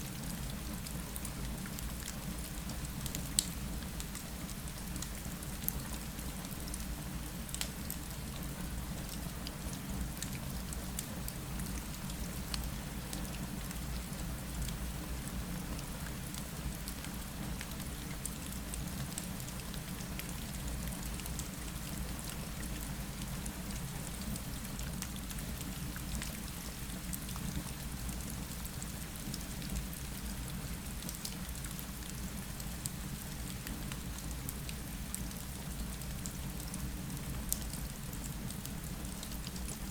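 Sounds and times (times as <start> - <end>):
rain falling against a window: 0.0 - 39.9.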